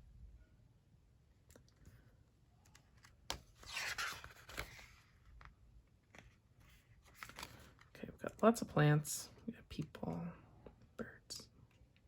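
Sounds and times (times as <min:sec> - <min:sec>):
scratchy paper rustling: 0:02.8 - 0:05.3.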